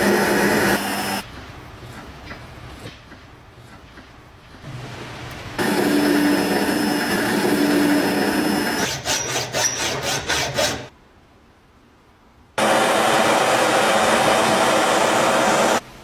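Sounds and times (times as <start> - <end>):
tool scraping rusty metal lock: 8.6 - 10.9.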